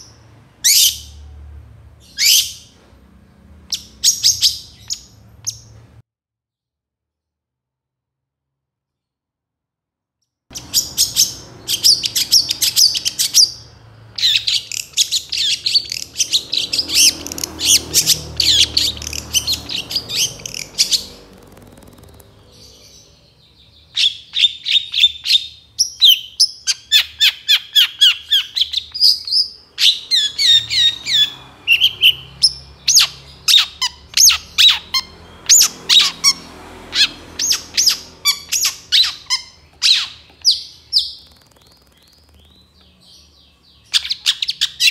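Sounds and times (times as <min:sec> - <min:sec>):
bird singing high chattering notes: 0:10.5 - 0:44.9.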